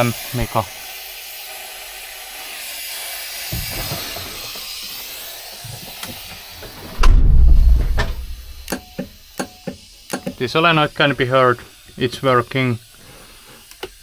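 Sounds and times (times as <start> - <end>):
compressed air hissing: 0.0 - 14.0
loud low rumble: 6.9 - 8.7.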